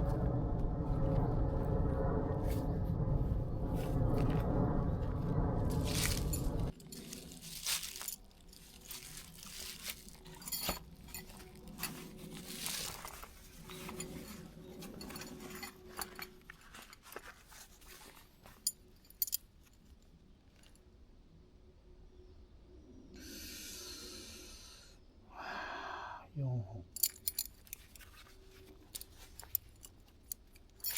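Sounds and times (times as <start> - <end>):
tarp rustling: 5.7 - 18.7
small metal parts clinking: 5.8 - 19.9, 27.0 - 30.9.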